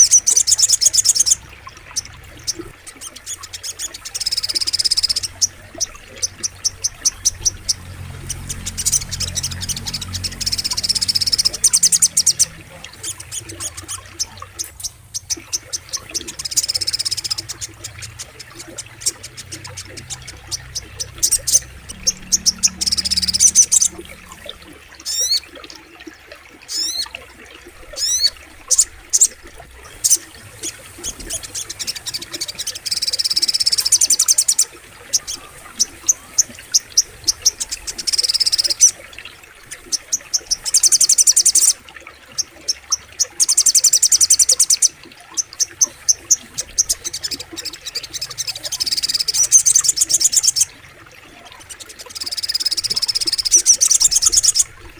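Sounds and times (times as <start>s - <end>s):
bird calling with high rapid trills: 0.0s - 26.0s, 26.6s - 27.1s, 27.8s - 54.8s.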